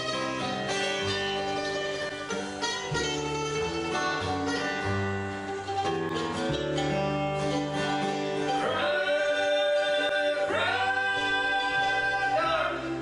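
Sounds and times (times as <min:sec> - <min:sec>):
acoustic bluegrass band playing: 0:00.0 - 0:13.0.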